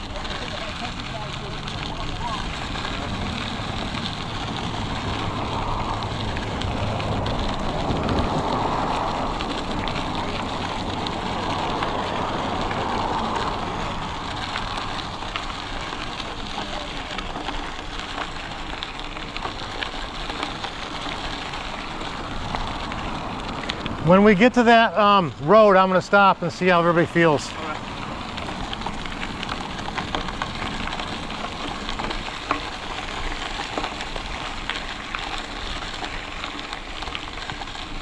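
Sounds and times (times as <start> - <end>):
wind rushing over microphone: 0.0 - 16.3
bicycle tyres rolling on trail: 0.0 - 38.0.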